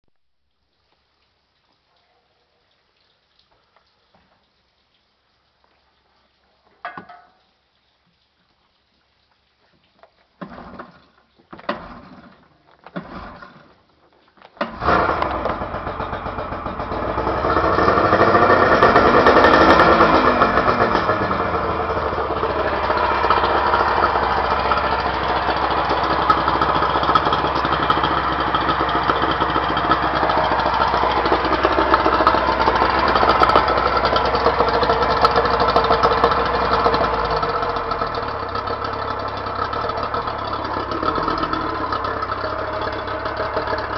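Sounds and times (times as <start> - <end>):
outboard motor cranking and idling: 10.3 - 43.9.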